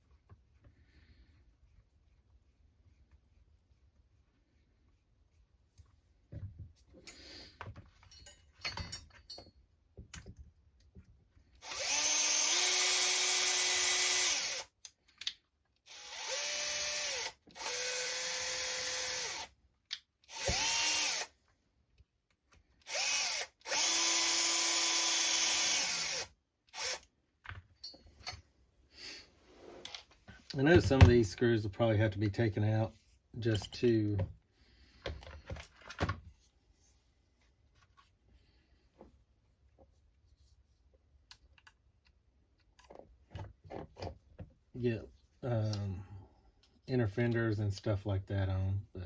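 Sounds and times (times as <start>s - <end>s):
power drill whining: 11.6s - 14.7s, 15.9s - 19.5s, 20.3s - 21.3s, 22.8s - 27.1s.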